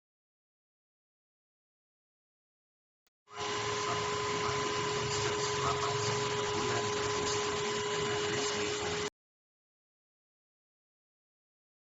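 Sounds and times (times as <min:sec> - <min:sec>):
handheld vacuum cleaner running: 0:03.3 - 0:09.1.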